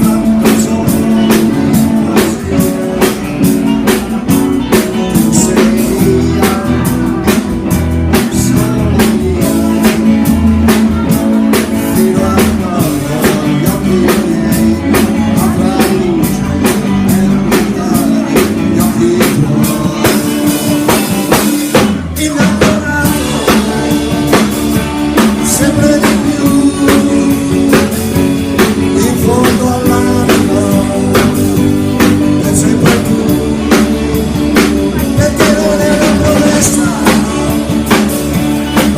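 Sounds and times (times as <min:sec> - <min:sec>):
drums keeping a steady beat: 0:00.0 - 0:38.9
person singing: 0:00.0 - 0:38.9
rock band playing: 0:00.0 - 0:38.9.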